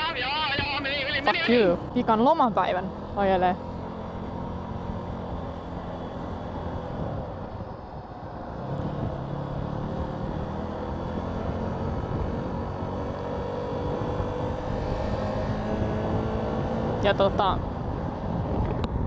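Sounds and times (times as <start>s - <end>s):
motorcycle engine accelerating: 0.0s - 19.0s
wind noise on microphone: 4.9s - 19.0s.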